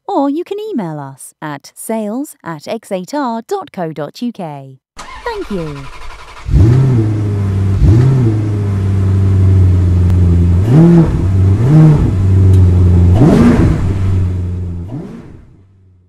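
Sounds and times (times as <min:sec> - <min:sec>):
car engine with throttle blips: 0:05.0 - 0:16.0.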